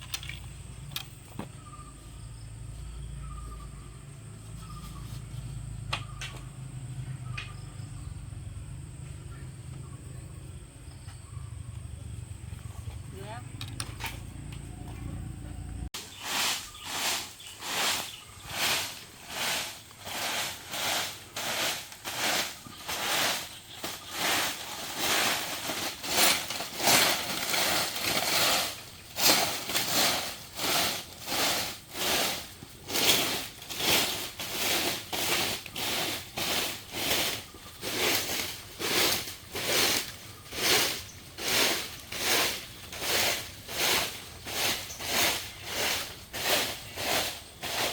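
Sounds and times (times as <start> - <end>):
hand tool rasping bamboo: 16.0 - 47.9.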